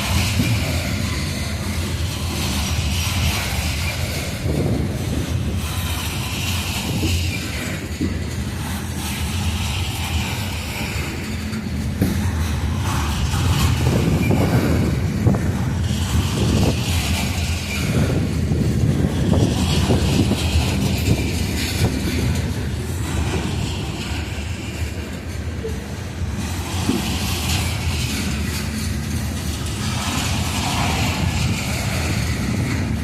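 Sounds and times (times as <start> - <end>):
low train rumble: 0.0 - 33.0
train wheels clacking on rail joints: 0.0 - 33.0.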